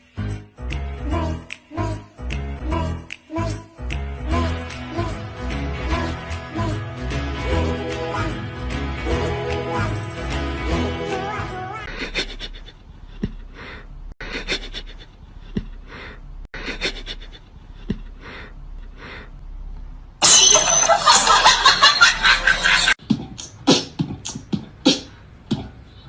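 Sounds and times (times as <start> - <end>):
breathy panting: 11.9 - 19.4.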